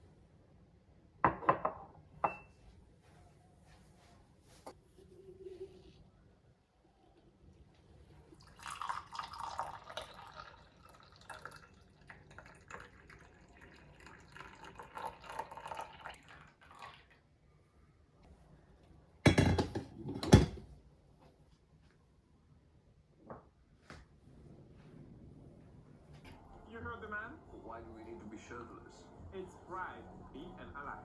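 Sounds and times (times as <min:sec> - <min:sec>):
water pouring with splashes: 0:08.4 - 0:17.1.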